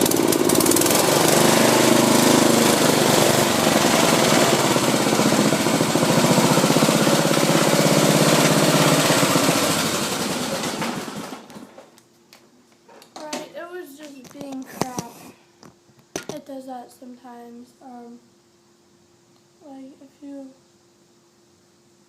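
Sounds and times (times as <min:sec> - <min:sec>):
riding mower engine running: 0:00.0 - 0:11.9.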